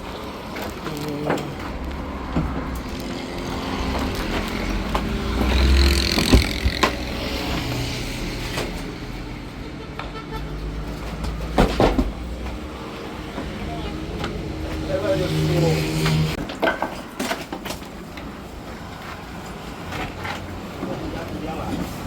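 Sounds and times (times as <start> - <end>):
sharp knocks: 3.9 - 7.2.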